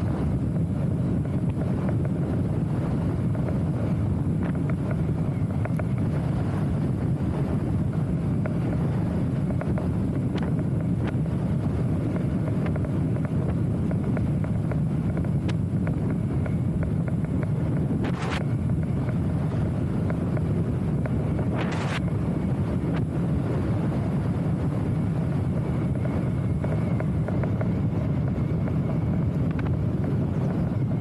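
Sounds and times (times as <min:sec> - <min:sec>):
wind buffeting microphone: 0:00.0 - 0:31.0
faint ticks: 0:04.4 - 0:06.1.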